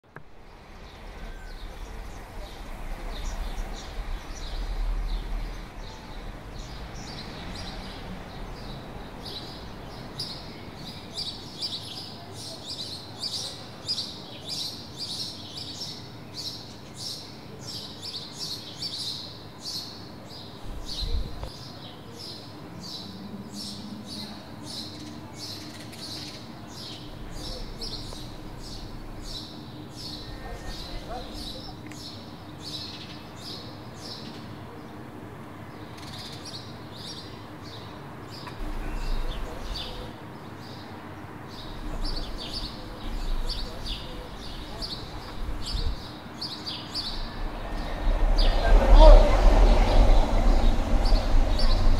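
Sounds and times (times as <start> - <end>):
low bump: 47.0 - 51.9.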